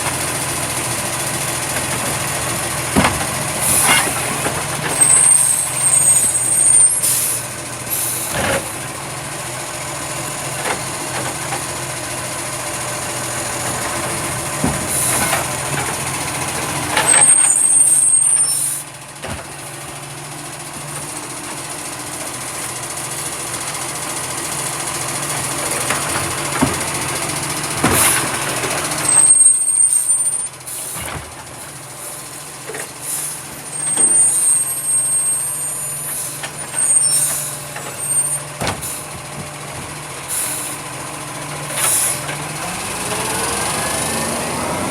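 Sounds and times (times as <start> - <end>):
truck engine running: 0.0 - 44.9
short high squeal: 5.0 - 7.4, 17.1 - 18.8, 29.0 - 31.0, 33.8 - 38.4.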